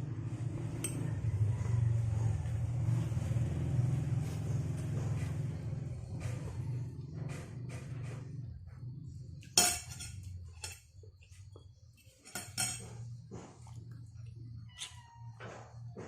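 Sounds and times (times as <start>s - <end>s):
utensils clinking against dishes: 0.7s - 1.5s, 9.4s - 13.8s.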